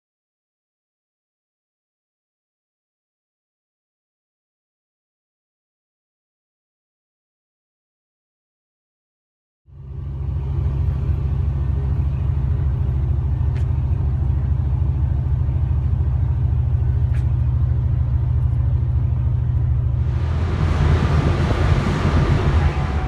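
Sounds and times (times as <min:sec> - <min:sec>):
vehicle engine rumble: 0:09.7 - 0:23.0
loud rushing hiss: 0:20.0 - 0:23.0.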